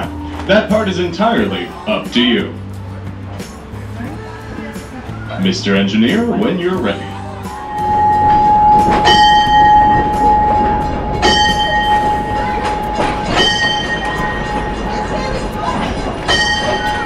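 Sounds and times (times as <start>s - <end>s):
diesel train pulling away: 0.0s - 17.0s
steady high tone: 7.2s - 17.0s
sharp metallic clanks: 7.5s - 17.0s.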